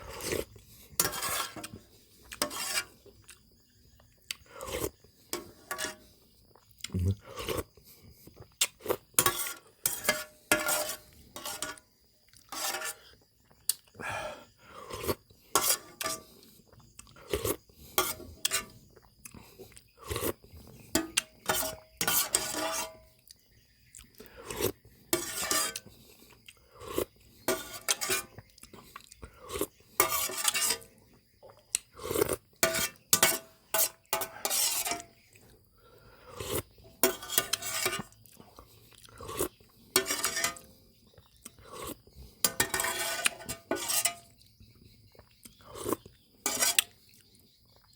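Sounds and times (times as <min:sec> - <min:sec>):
chewing: 0:03.0 - 0:05.0, 0:06.5 - 0:09.1, 0:12.3 - 0:14.0, 0:16.0 - 0:17.8, 0:18.4 - 0:21.9, 0:23.2 - 0:24.9, 0:25.8 - 0:27.3, 0:28.3 - 0:29.8, 0:31.1 - 0:32.6, 0:35.2 - 0:36.7, 0:38.0 - 0:39.9, 0:41.0 - 0:42.4, 0:45.1 - 0:46.2.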